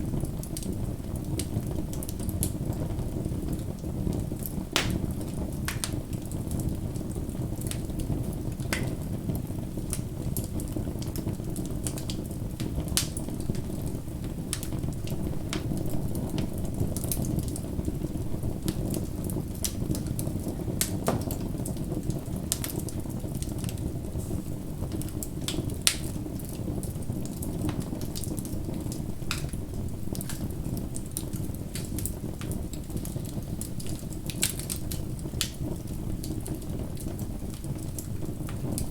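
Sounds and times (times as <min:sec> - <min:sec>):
fire crackling and popping: 0:00.0 - 0:38.9
low rumble of flames: 0:00.0 - 0:38.9.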